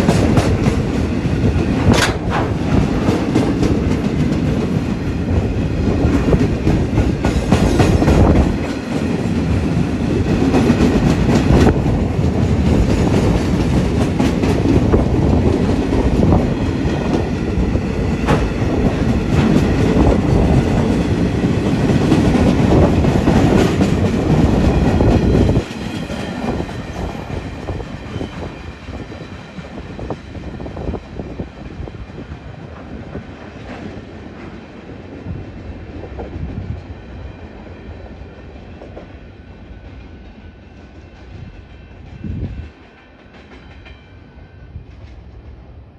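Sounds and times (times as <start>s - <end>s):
train wheels clattering over rail joints: 0.0s - 17.4s, 18.0s - 29.6s.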